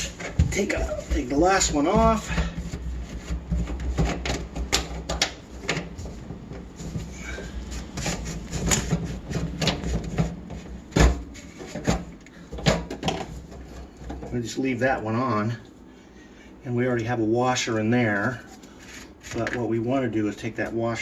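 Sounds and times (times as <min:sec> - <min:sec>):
plastic pipes clicking and knocking: 0:00.0 - 0:07.1, 0:08.0 - 0:14.3
steady low hum: 0:00.0 - 0:21.0.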